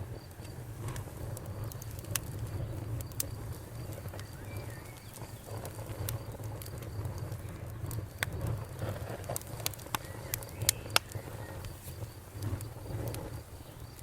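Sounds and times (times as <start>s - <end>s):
campfire crackling: 0.0s - 14.0s
cricket trill: 0.0s - 14.0s
bird chirp: 1.6s - 8.0s, 9.6s - 14.0s.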